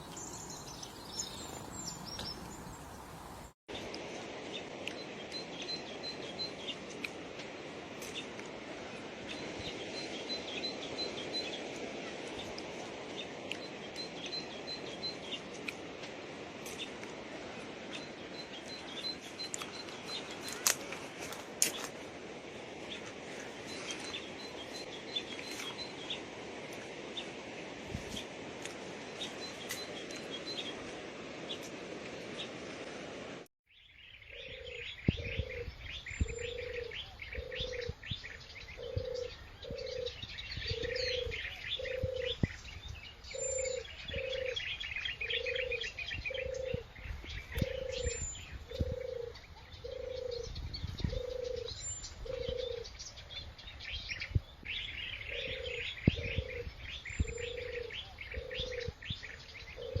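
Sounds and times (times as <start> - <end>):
small birds chirping: 0.0 - 3.9, 33.7 - 60.0
dove cooing: 36.4 - 37.9, 38.8 - 42.4, 43.5 - 44.6, 45.2 - 46.9, 47.6 - 50.5, 51.1 - 52.9, 55.3 - 56.7, 57.3 - 58.9, 59.8 - 60.0.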